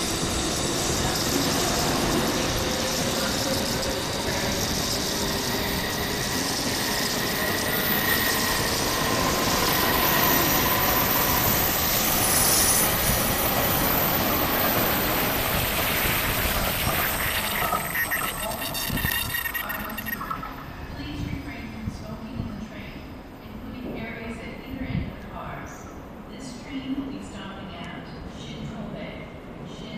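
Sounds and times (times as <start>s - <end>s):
train wheels rushing on rail: 0.0s - 18.5s
faint high whining tones: 14.4s - 22.2s.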